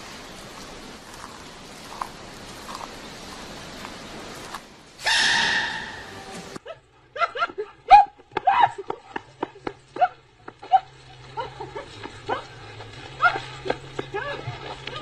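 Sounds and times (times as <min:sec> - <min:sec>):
dog barking and yelping: 0:05.0 - 0:06.2
panda sneeze squeal: 0:05.0 - 0:06.2.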